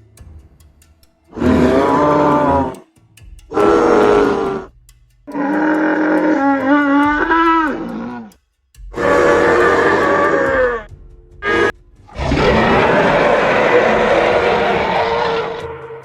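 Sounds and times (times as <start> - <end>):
dinosaur roars: 1.3 - 2.8, 3.5 - 4.7, 5.4 - 8.3, 9.0 - 16.0.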